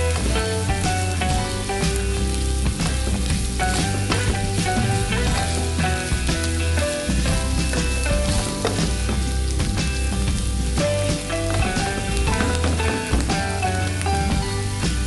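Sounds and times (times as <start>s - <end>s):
pork sizzling in a frying pan: 0.0s - 15.0s.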